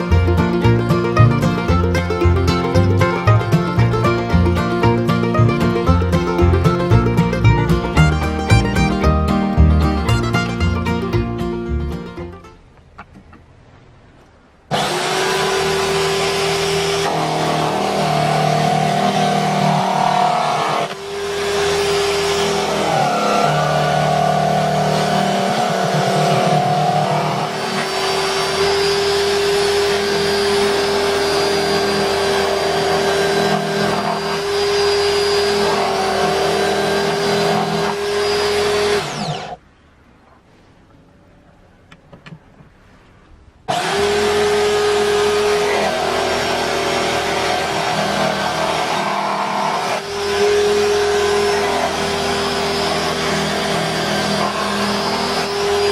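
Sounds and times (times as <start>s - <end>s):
electric drill motor whining: 14.7s - 39.6s, 43.7s - 55.9s.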